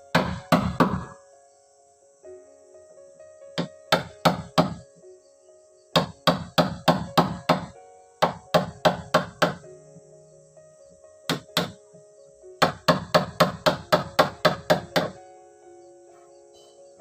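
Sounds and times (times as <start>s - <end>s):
tool striking wood: 0.1s - 1.2s, 3.6s - 4.8s, 6.0s - 9.6s, 11.3s - 11.8s, 12.6s - 15.2s.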